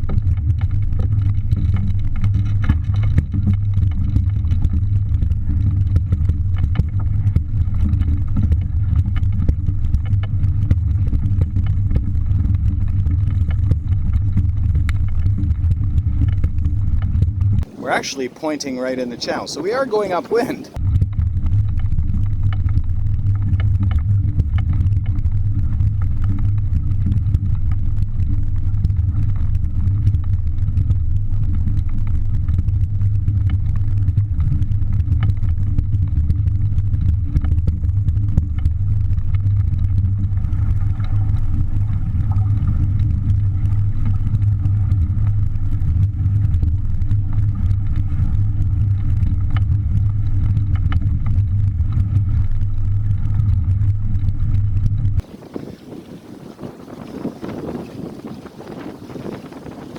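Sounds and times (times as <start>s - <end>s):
wind buffeting microphone: 55.2s - 59.9s.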